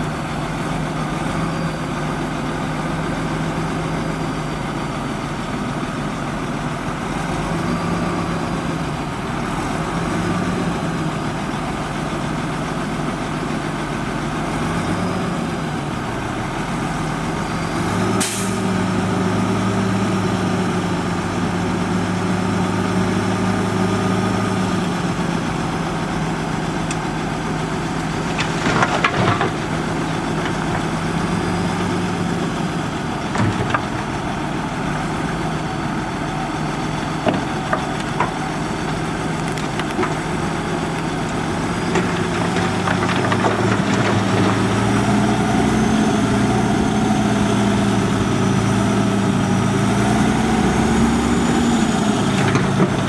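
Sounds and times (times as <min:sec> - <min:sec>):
diesel engine running: 0:00.0 - 0:53.0
metal knocks and clanks: 0:33.2 - 0:34.4, 0:41.8 - 0:44.9, 0:52.2 - 0:53.0.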